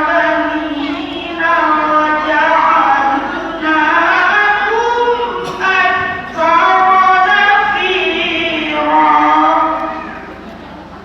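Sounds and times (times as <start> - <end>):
girl reciting in melodic voice: 0.0 - 10.4.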